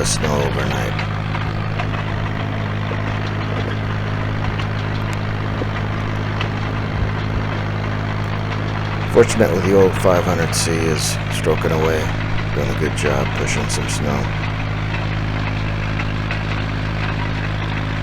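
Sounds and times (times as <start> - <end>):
dozer engine droning: 0.0 - 18.0
faint clicks: 0.0 - 18.0.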